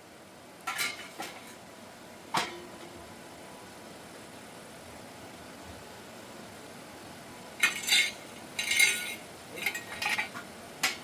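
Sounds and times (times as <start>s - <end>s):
metal pieces clinking: 7.6s - 10.3s.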